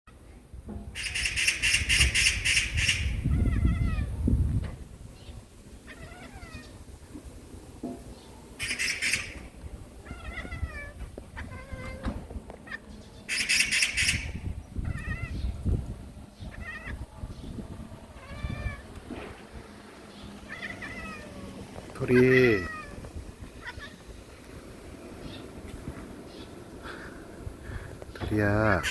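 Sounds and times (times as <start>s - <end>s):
magpie rattling calls: 1.0s - 3.9s, 8.6s - 9.5s, 12.6s - 15.5s
cat chattering chirps: 1.0s - 4.1s, 8.6s - 12.0s, 12.7s - 15.5s, 16.4s - 17.4s, 20.2s - 23.0s, 23.6s - 24.0s.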